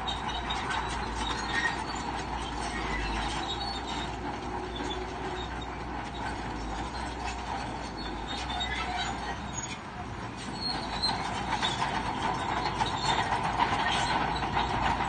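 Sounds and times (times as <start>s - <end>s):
bulldozer engine rumbling: 0.0s - 15.0s
steel tracks clattering and squeaking: 0.0s - 15.0s.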